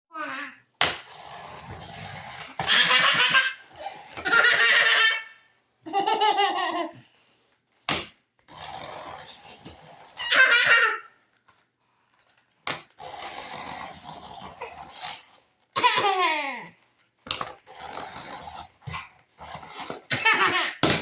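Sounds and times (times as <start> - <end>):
young child laughing: 2.6 - 7.0, 10.2 - 11.1, 15.8 - 16.7, 20.1 - 20.8.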